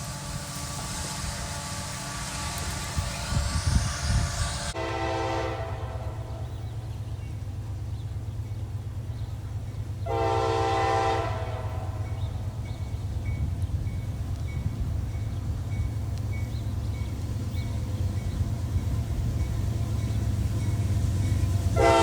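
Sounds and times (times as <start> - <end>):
low rumble of train: 0.0 - 22.0
locomotive air horn blasts: 0.1 - 6.6, 10.0 - 12.4, 21.7 - 22.0.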